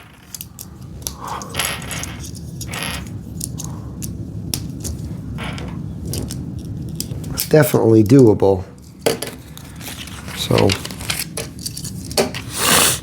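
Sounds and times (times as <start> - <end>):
plastic pieces clicking and rattling: 0.0 - 7.6
steady low hum: 0.0 - 12.5.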